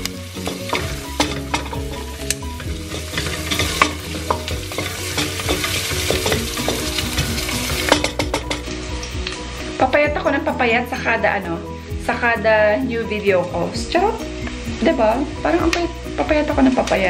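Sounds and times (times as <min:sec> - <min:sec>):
onions sizzling in hot oil: 0:00.0 - 0:17.0
wooden spoon knocking a pot: 0:00.5 - 0:08.7.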